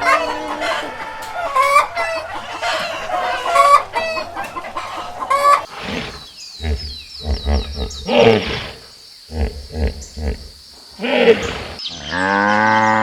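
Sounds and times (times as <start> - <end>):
chickens clucking: 0.0 - 8.0.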